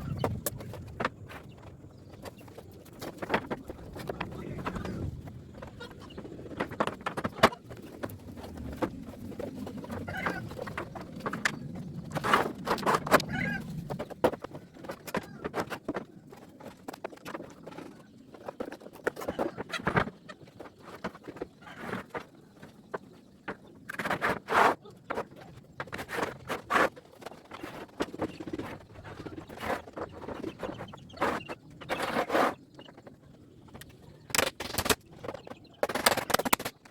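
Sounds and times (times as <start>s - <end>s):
construction knocks and clatter: 0.0s - 24.5s, 25.1s - 36.9s
farm animals calling: 3.7s - 6.3s, 10.0s - 10.6s, 13.2s - 13.7s.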